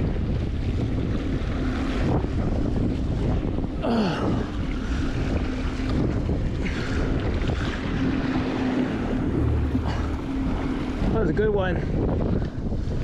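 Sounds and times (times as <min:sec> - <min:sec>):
boat engine hum: 0:00.0 - 0:13.0
waves against hull: 0:00.0 - 0:13.0
wind buffeting microphone: 0:00.0 - 0:13.0
short falling whine: 0:08.8 - 0:11.2.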